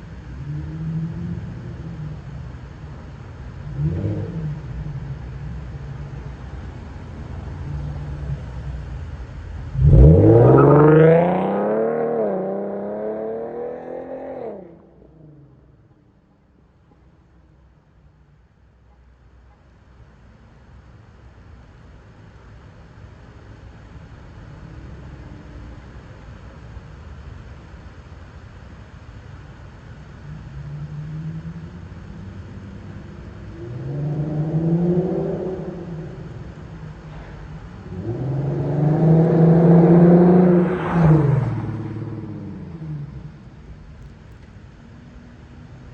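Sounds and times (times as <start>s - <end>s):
car exhaust revving: 7.3s - 15.6s, 30.5s - 44.1s.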